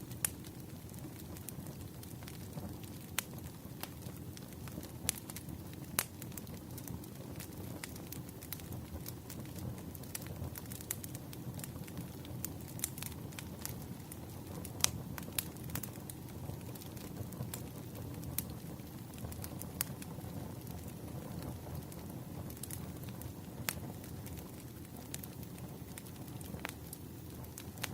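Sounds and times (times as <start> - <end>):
firewood crackling and popping: 0.0 - 27.9
low rumble of flames: 0.0 - 27.9.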